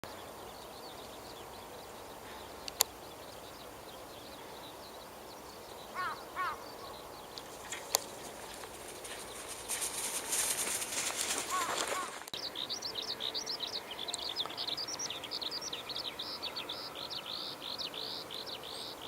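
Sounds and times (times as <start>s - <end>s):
outdoor background hiss: 0.0s - 19.0s
faint high bird chirps: 0.1s - 19.0s
sharp clicks: 2.6s - 3.0s, 7.3s - 12.4s
short animal calls: 5.9s - 6.7s, 11.4s - 12.3s.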